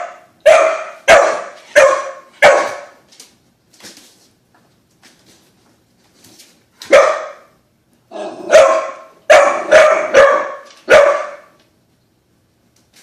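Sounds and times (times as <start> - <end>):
dog barking: 0.0 - 3.0, 6.8 - 11.6.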